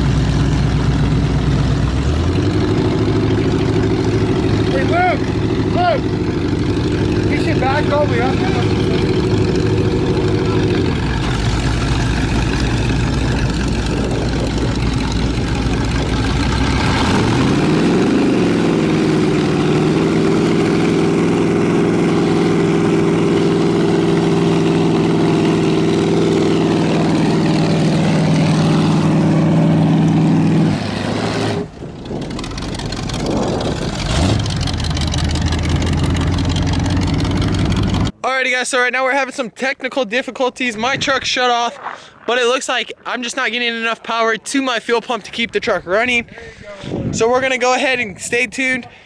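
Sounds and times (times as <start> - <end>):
truck engines revving: 0.0 - 38.2, 40.6 - 49.0.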